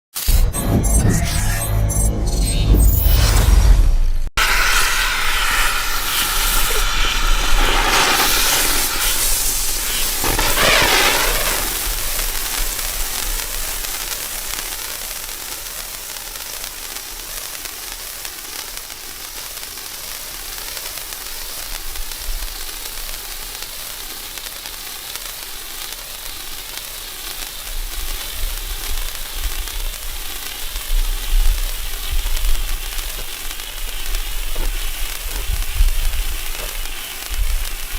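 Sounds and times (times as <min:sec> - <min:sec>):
crackly bursts: 0:04.4 - 0:37.9
firework fountain hissing sparks: 0:04.4 - 0:37.9.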